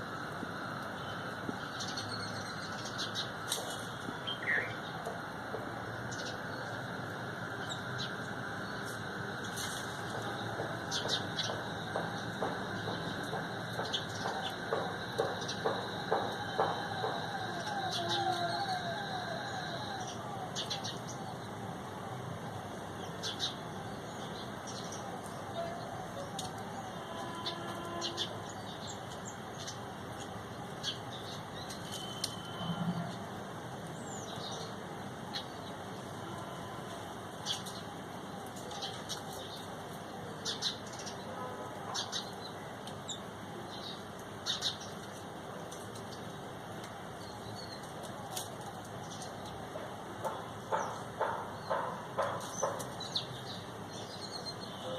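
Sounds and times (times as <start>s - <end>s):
outdoor background hiss: 0.0s - 54.9s
small birds chirping: 0.8s - 21.6s, 41.9s - 54.9s
sharp high bird chirps: 4.2s - 4.8s
bird calling falling notes: 13.9s - 20.8s.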